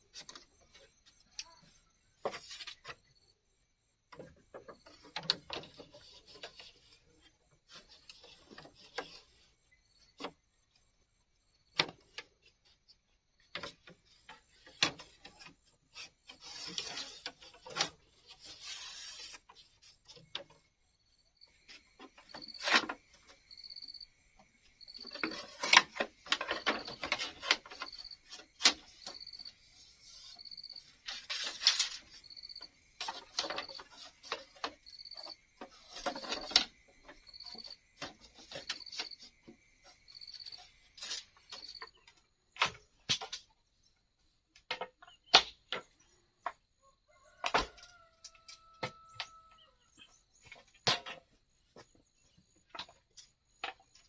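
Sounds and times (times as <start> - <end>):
scraping bamboo: 0.0 - 3.2, 4.1 - 10.9, 11.7 - 43.6
insect trilling and chirping: 16.2 - 43.5.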